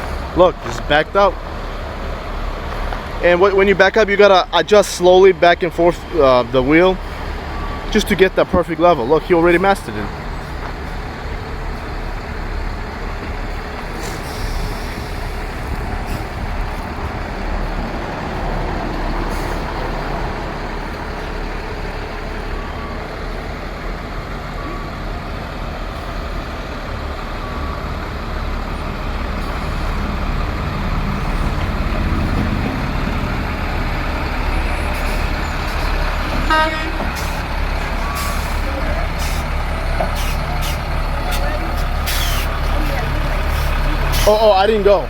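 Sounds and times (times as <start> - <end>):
truck engine running: 0.0 - 45.0.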